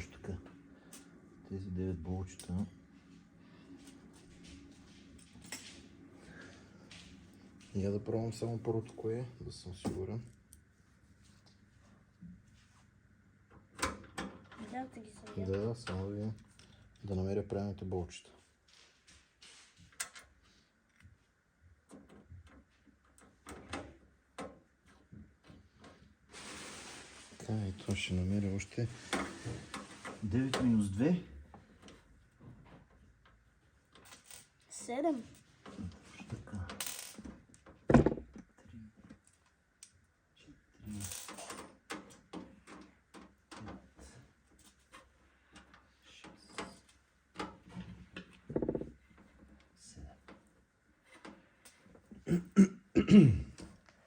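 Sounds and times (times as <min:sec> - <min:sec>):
small metal parts clicking: 0:40.9 - 0:41.6.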